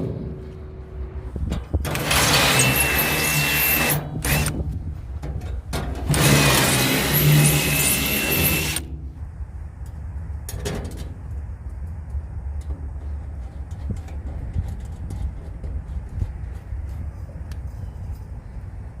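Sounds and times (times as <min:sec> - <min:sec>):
low background rumble: 0:00.0 - 0:19.0
power tool whining: 0:01.9 - 0:04.6, 0:06.1 - 0:08.9.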